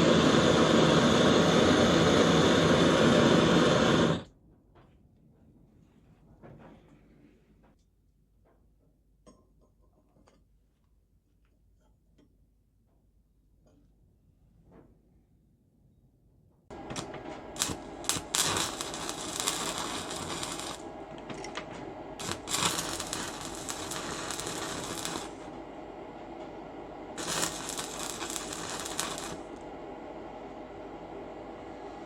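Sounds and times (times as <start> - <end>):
power grinder humming: 16.7 - 30.0
metal grinding hiss: 16.7 - 31.6.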